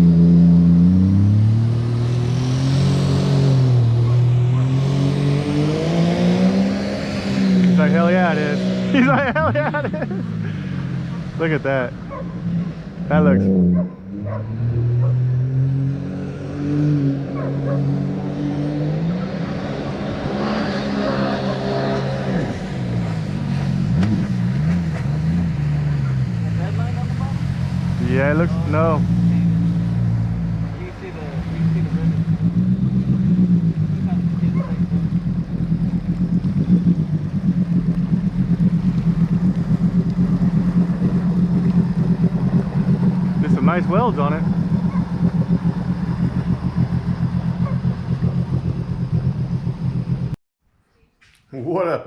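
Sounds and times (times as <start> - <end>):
outboard motor running: 26.4 - 50.4.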